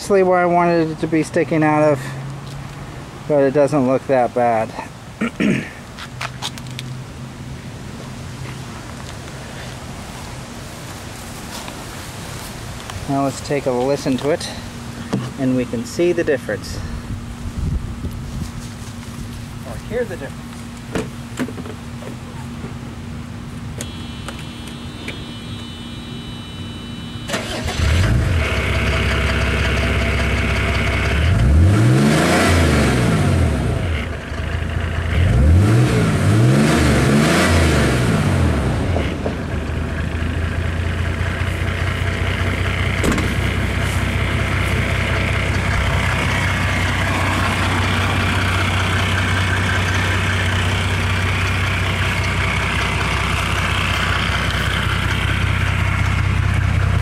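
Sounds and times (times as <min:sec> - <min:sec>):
diesel engine starting and idling: 0:22.2 - 0:57.0
engine revving: 0:23.8 - 0:57.0.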